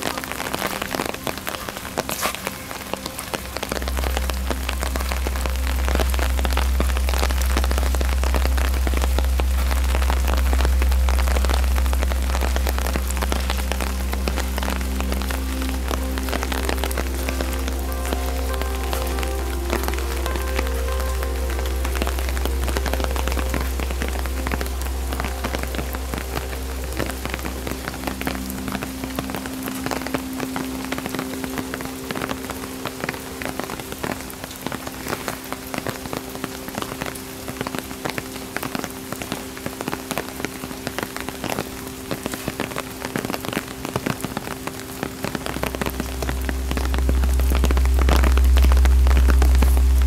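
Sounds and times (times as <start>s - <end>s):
raindrops pattering: 0.0s - 50.0s
steady rain falling: 0.0s - 50.0s
deep low rumble: 3.4s - 35.0s, 45.3s - 50.0s.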